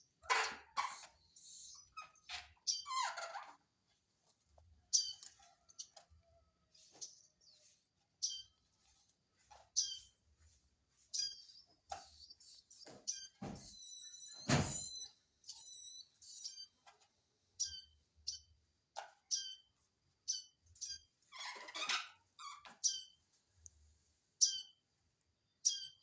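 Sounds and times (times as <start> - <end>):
baby bird chirping: 12.2 - 16.7.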